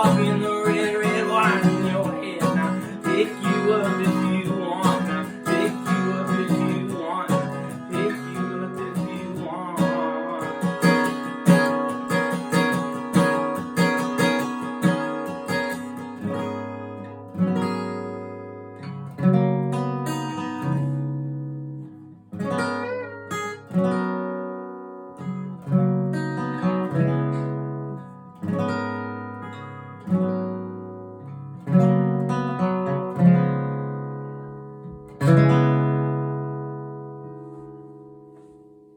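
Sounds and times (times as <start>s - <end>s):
acoustic guitar chords: 0.0s - 38.9s.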